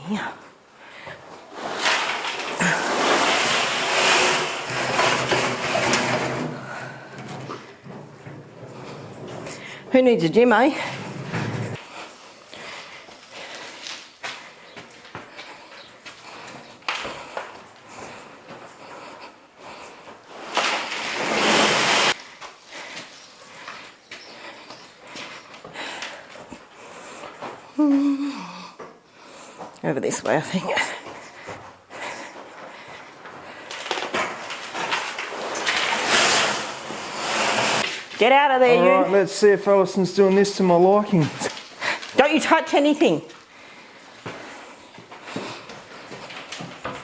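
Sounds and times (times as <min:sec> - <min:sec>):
shovel scraping loose material: 0:01.5 - 0:06.8, 0:20.3 - 0:22.2, 0:33.8 - 0:38.3.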